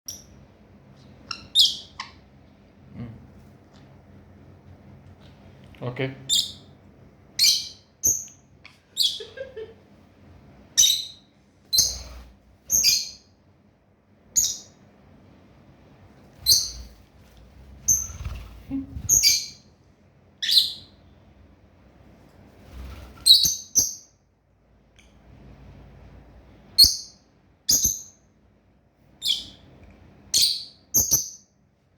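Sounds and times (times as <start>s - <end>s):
birds chirping: 1.2s - 2.4s.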